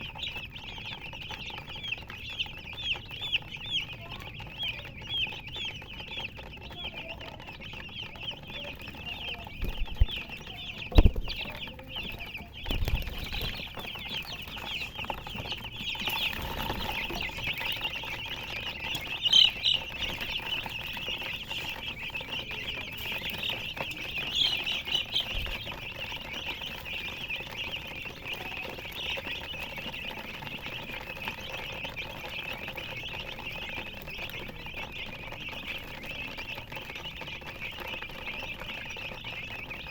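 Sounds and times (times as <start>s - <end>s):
baby chicks peeping: 0.0s - 39.9s
hen clucking: 0.0s - 39.9s
low thumps: 10.8s - 11.6s.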